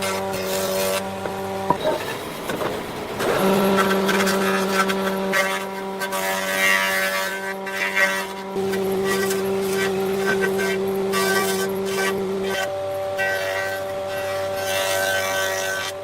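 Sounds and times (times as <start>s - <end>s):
motor humming: 0.1s - 6.2s
rough noise: 0.6s - 5.7s.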